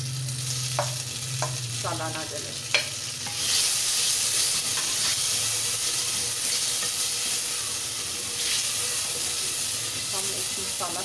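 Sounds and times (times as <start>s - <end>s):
tomatoes sizzling in hot oil: 0.0s - 11.0s.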